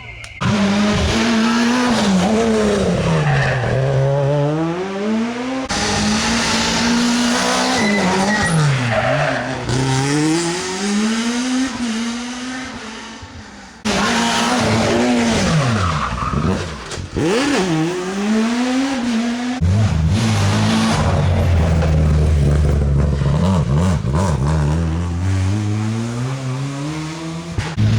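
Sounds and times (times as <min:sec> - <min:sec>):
rally car engine revving: 0:00.4 - 0:27.9
tyre squeal: 0:07.4 - 0:09.8.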